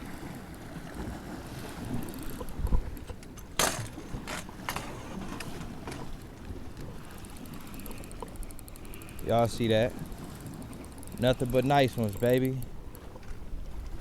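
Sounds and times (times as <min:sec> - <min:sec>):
wind rumbling on microphone: 0:00.9 - 0:07.0, 0:12.6 - 0:14.0
sharp clicks or knocks: 0:03.2 - 0:06.0.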